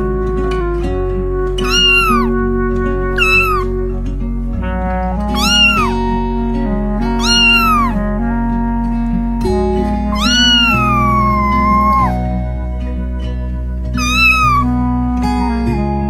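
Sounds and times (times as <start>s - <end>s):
background music: 0.0s - 16.0s
cat meowing: 1.6s - 2.4s, 3.2s - 3.8s, 5.3s - 6.0s, 7.2s - 8.0s, 10.1s - 12.3s, 14.0s - 14.7s.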